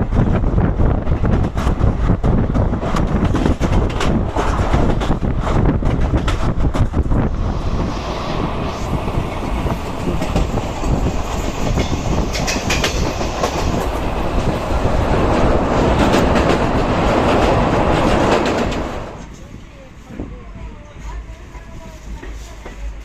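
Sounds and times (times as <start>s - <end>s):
train rumble on rails: 0.0s - 23.0s
wheels clattering over rail joints: 1.1s - 7.0s.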